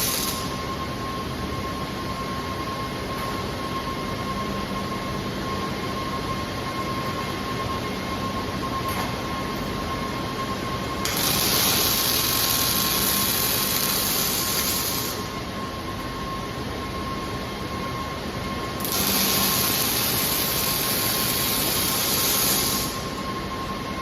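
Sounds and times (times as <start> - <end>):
robotic welding hiss: 0.0 - 0.5, 11.1 - 15.2, 18.8 - 23.1.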